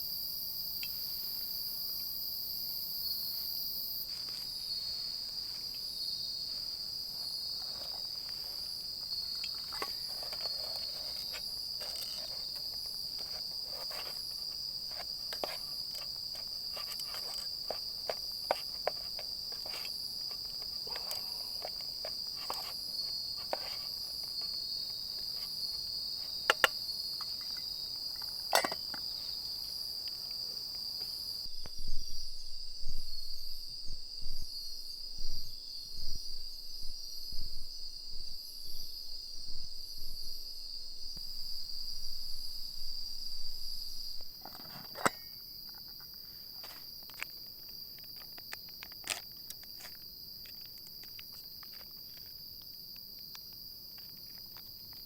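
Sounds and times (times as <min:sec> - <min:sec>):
insects trilling: 0:00.0 - 0:32.2, 0:34.5 - 0:55.0
sharp clicks and pops: 0:09.3 - 0:29.2, 0:46.6 - 0:55.0.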